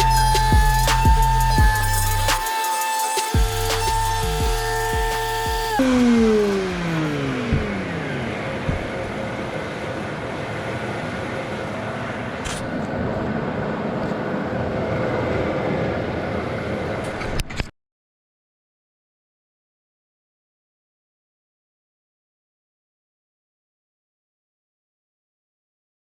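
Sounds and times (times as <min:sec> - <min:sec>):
power tool motor winding down: 0:00.0 - 0:11.9.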